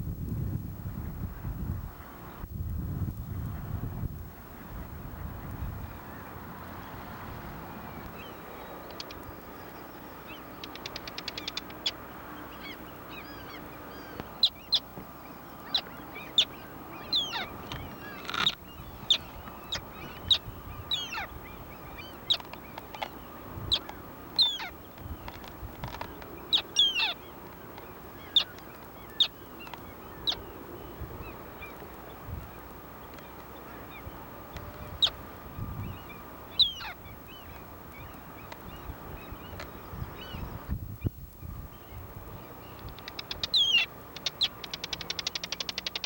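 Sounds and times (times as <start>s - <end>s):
birds calling high-pitched: 4.4s - 46.0s
rattling bird calls: 8.2s - 14.9s, 15.6s - 30.5s, 42.6s - 46.0s.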